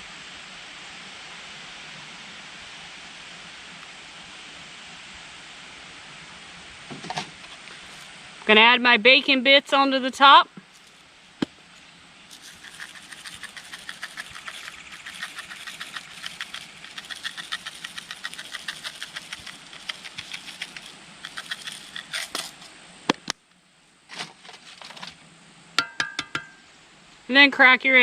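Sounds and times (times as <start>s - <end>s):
bacon bits rattling from container: 12.3s - 22.6s.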